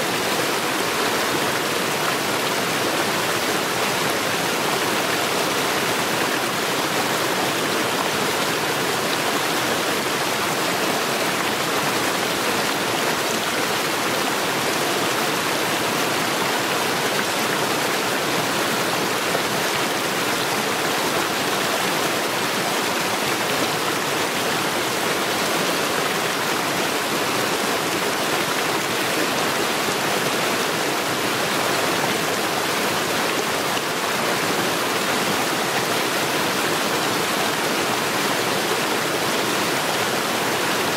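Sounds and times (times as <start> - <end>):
stream rushing over stones: 0.0 - 40.9.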